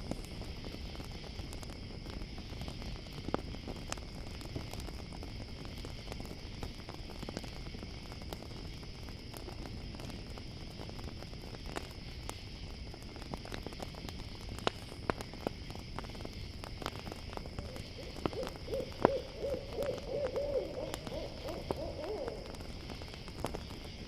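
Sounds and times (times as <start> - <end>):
campfire crackling and popping: 0.0 - 24.0
crickets chirring: 0.0 - 24.0
owl hooting: 17.6 - 22.6.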